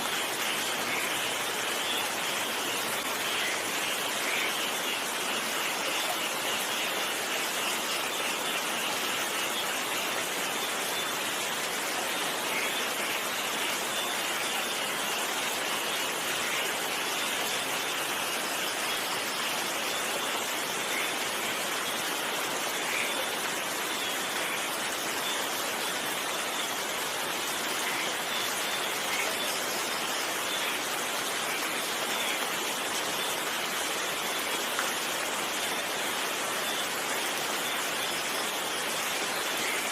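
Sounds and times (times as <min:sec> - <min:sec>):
louder raindrops: 0:00.0 - 0:39.9
steady rain falling: 0:00.0 - 0:39.9.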